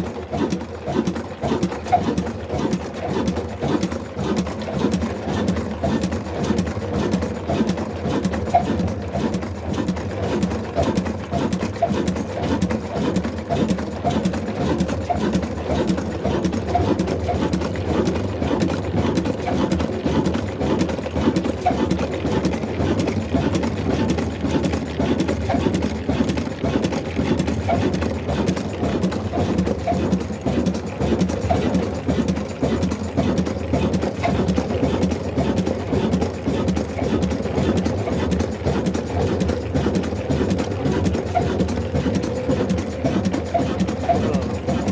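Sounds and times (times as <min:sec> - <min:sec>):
diesel engine rhythmic beat: 0:29.3 - 0:44.9.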